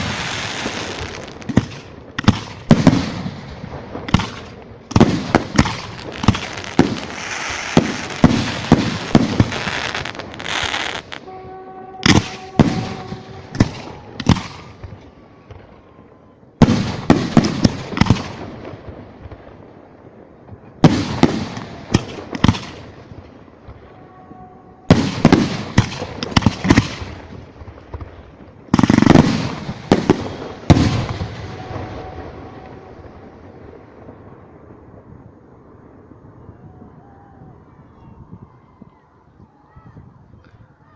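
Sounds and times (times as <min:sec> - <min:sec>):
small firework cracks: 0:00.0 - 0:11.3
fireworks bursting: 0:00.0 - 0:37.6.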